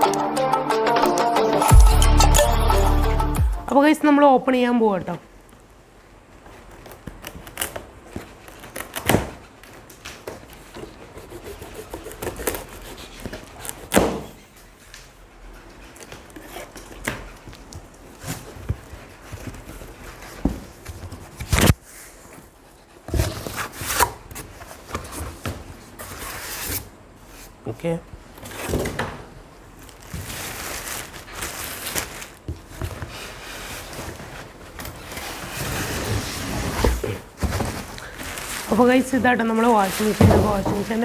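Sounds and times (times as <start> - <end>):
thumps and knocks of unpacking: 6.4 - 11.2, 12.2 - 14.4, 16.0 - 21.8, 28.4 - 38.8, 39.6 - 41.0.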